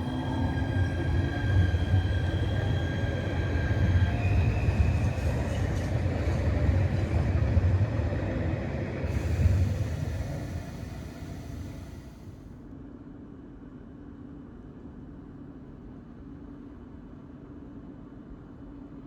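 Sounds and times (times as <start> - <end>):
electric train running past: 0.0 - 12.5.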